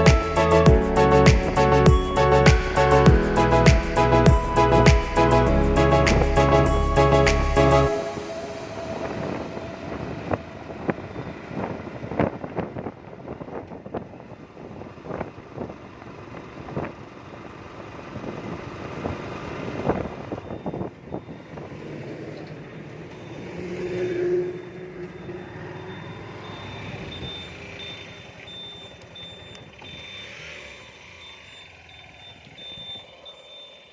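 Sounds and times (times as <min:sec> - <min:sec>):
repeating electronic beeping: 0:00.0 - 0:11.8
road traffic noise: 0:00.0 - 0:33.9.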